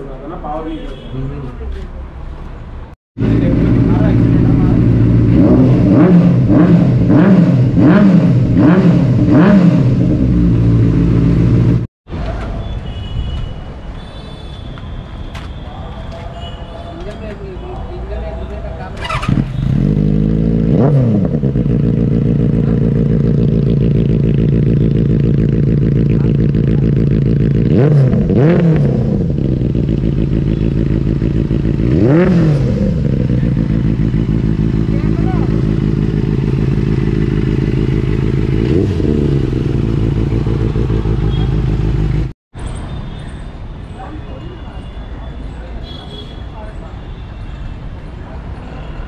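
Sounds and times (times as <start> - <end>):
motorcycle engine revving and idling: 3.2 - 11.9, 18.9 - 42.4.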